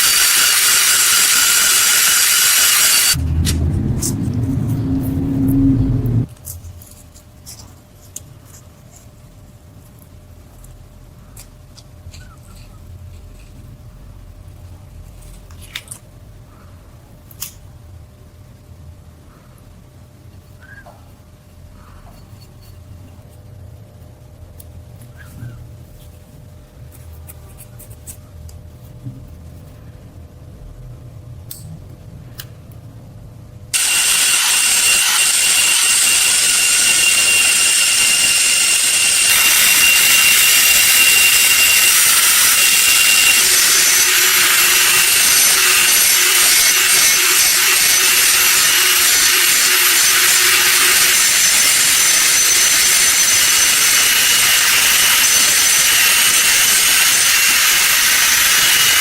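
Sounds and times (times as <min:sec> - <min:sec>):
abrasive power tool rasping: 0:00.0 - 0:03.2, 0:33.8 - 0:59.0.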